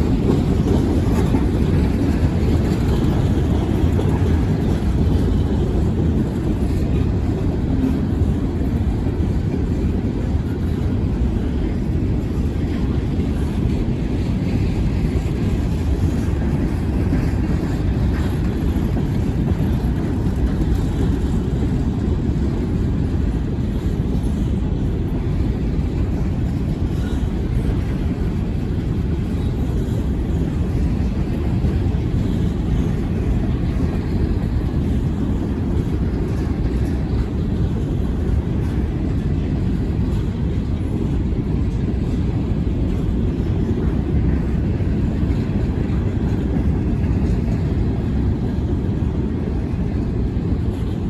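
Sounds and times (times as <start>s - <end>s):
freight train rumbling past: 0.0s - 51.0s.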